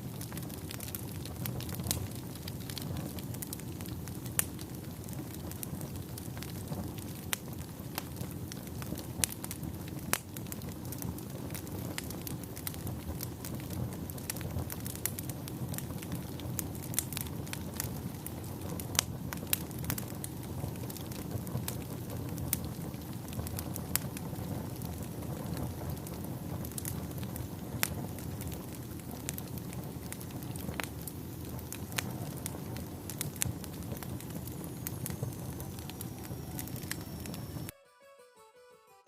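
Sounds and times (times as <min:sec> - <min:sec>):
low rush of flames: 0:00.0 - 0:37.7
wood crackling and popping: 0:00.0 - 0:37.7.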